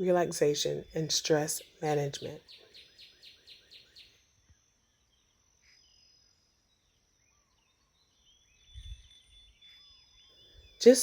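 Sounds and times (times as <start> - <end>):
faint bird chirps: 2.4 - 11.0.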